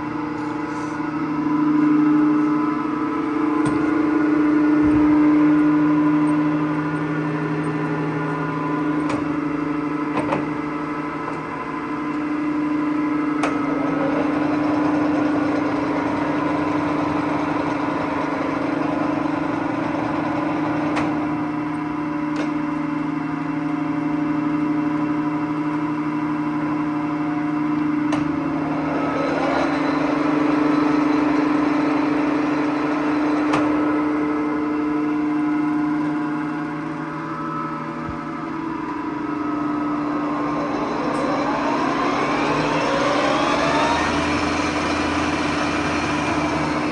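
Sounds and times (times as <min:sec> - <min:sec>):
lathe motor hum and whine: 0:00.0 - 0:46.9.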